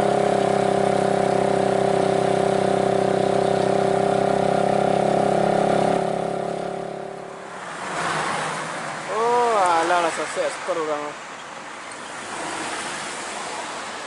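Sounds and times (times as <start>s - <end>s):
diesel truck engine under load: 0.0s - 7.6s.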